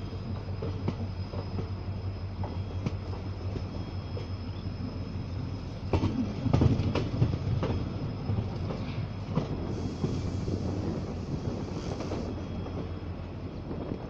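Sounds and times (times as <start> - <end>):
train coach rumbling: 0.0 - 14.0
hiss: 5.1 - 13.0.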